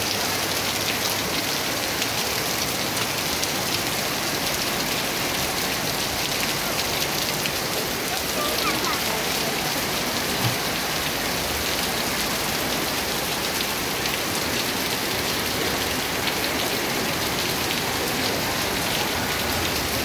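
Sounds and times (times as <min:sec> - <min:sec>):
heavy rain on pavement and vehicles: 0:00.0 - 0:20.0
individual raindrops hitting: 0:00.0 - 0:20.0.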